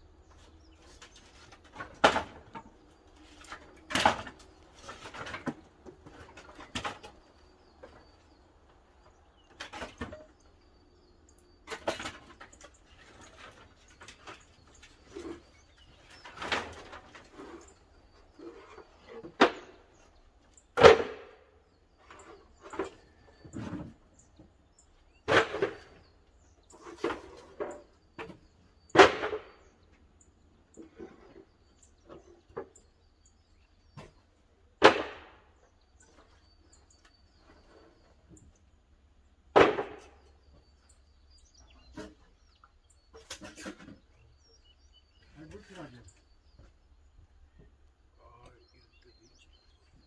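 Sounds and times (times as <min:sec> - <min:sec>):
firewood knocking and clattering: 0:00.2 - 0:20.1.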